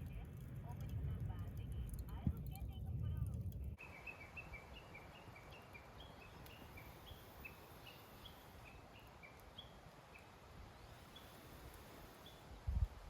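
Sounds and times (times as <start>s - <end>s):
faint outdoor hush: 0.0s - 13.0s
bird chirping: 3.8s - 12.5s.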